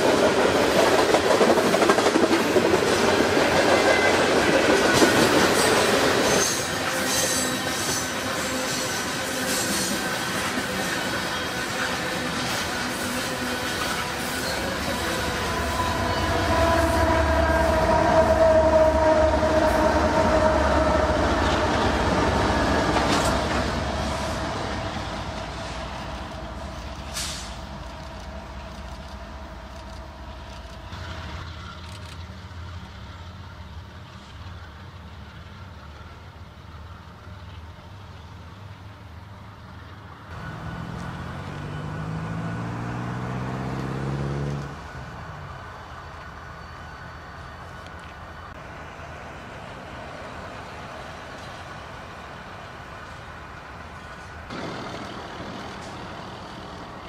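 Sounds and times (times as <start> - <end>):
freight train rolling past: 0.0 - 57.0
vehicle engine revving: 40.3 - 44.8.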